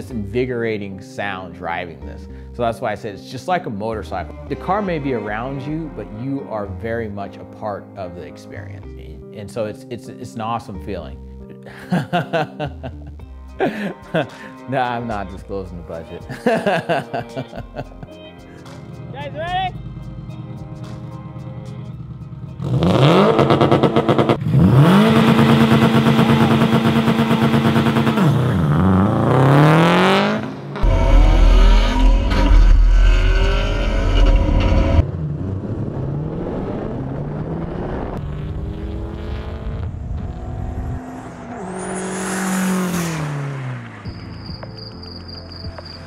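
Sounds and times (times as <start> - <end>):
car engines revving: 19.7 - 45.0
car driving past: 19.8 - 46.0.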